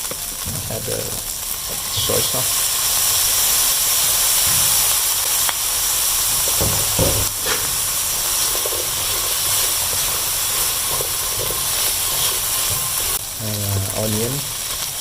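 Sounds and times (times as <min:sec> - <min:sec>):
food sizzling in a frying pan: 0:00.0 - 0:15.0
low knocks: 0:06.5 - 0:08.8.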